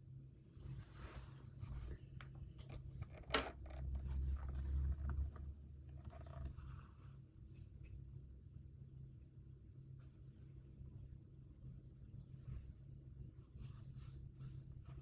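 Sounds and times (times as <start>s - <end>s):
scratchy rustling and scraping: 0.6s - 7.0s.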